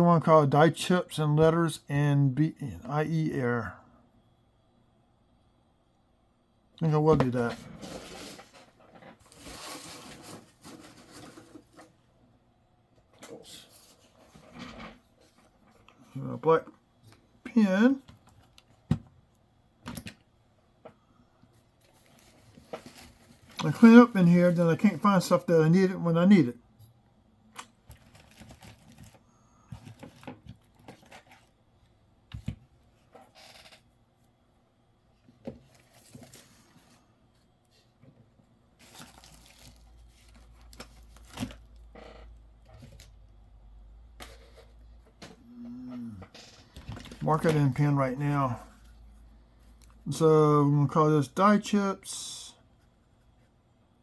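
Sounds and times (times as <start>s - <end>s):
small items rustling on a desk: 7.1s - 12.1s, 13.0s - 25.2s, 27.6s - 34.4s, 35.2s - 43.4s, 44.1s - 50.1s.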